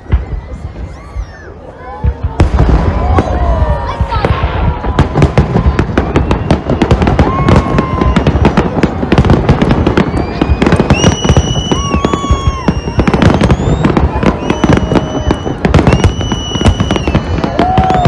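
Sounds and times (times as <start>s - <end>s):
fireworks cracks and pops: 0.0s - 18.0s
fireworks whistles: 5.8s - 18.0s.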